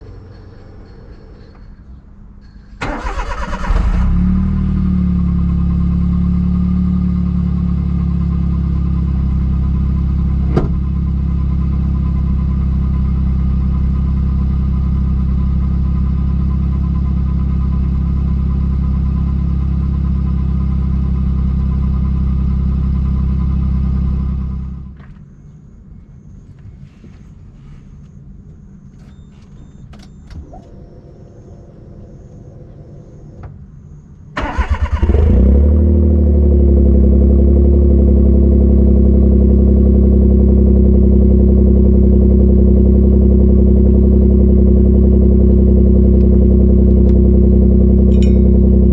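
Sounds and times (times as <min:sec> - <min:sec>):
car engine idling: 0:02.8 - 0:25.0, 0:34.4 - 0:48.9.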